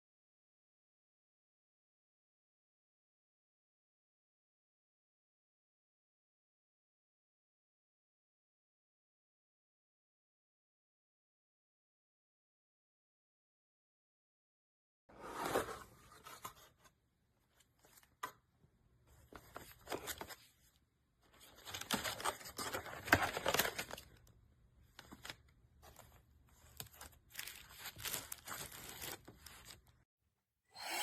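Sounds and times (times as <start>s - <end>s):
rustling and crinkling handling noise: 24.8s - 30.0s.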